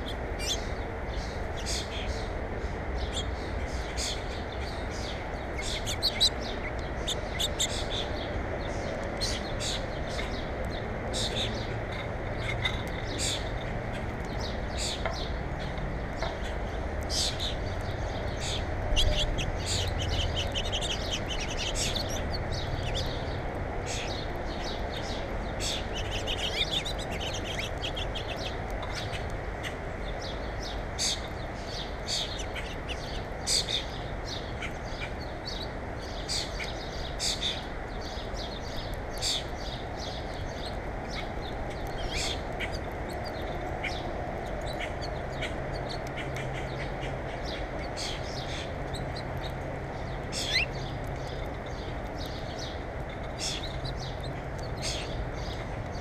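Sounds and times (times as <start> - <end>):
small birds chirping: 0.0 - 56.0
steady background noise: 0.0 - 56.0.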